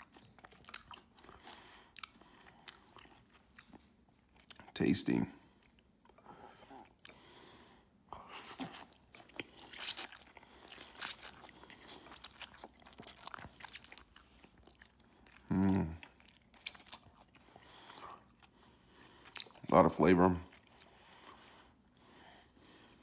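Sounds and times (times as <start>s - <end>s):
chewing with wet mouth clicks: 0.0s - 4.8s, 5.6s - 7.2s, 8.4s - 19.7s, 20.5s - 22.0s
person humming mm: 15.4s - 16.0s.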